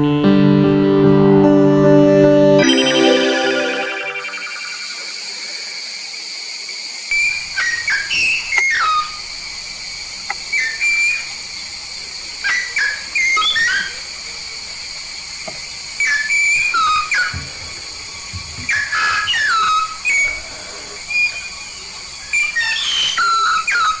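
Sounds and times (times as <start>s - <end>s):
myna whistled calls: 7.1s - 9.2s, 12.4s - 14.0s, 18.6s - 24.0s.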